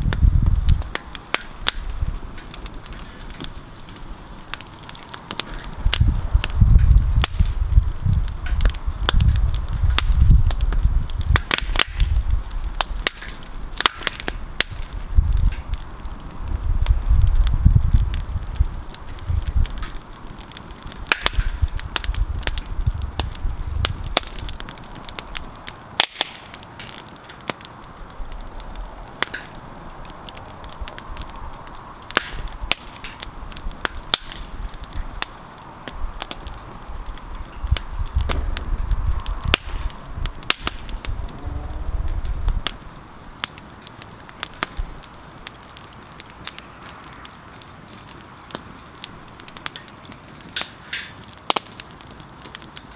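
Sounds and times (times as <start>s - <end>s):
campfire crackling and popping: 0.0s - 52.9s
low rumble: 36.0s - 42.7s.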